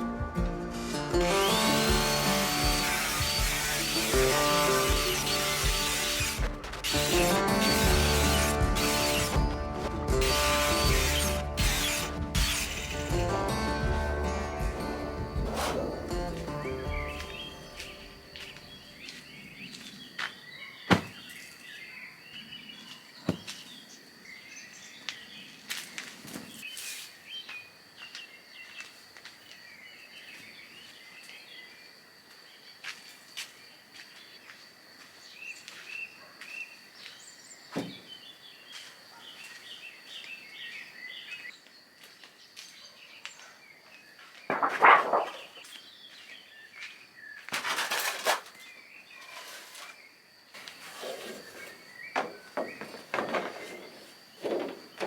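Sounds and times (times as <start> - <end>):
small birds chirping: 15.2 - 47.5
sharp knocks: 20.9 - 21.2.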